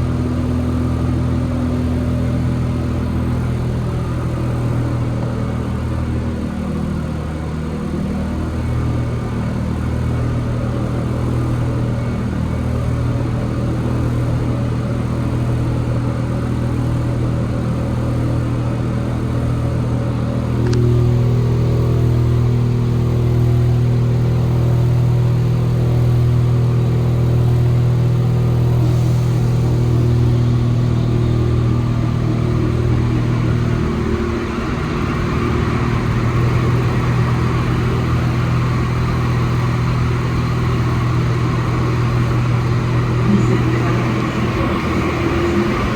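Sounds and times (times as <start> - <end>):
metro car hum: 0.0 - 45.9
train rolling noise: 0.0 - 45.9
click: 20.6 - 20.9.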